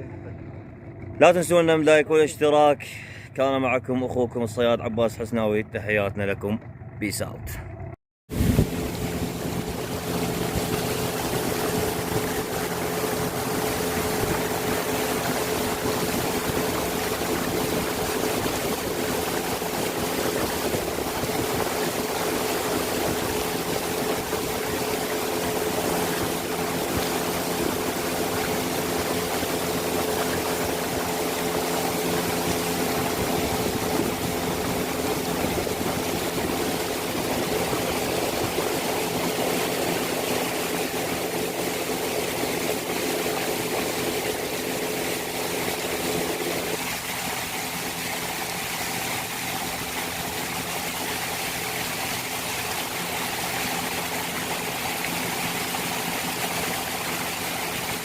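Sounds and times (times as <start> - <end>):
small boat engine running: 0.0 - 58.0.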